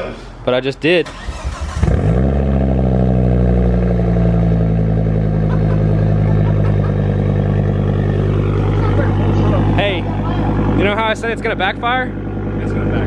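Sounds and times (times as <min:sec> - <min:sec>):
car engine starting and idling: 0:00.8 - 0:13.0.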